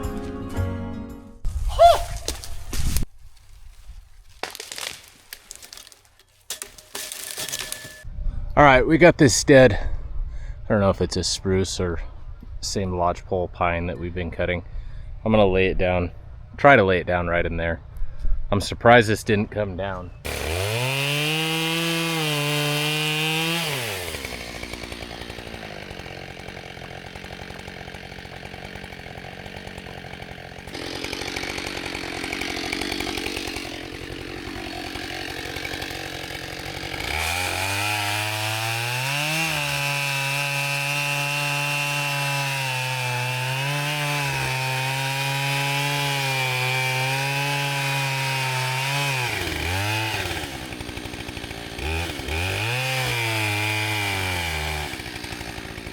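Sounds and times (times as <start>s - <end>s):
chainsaw running: 4.4s - 8.1s, 20.2s - 55.9s.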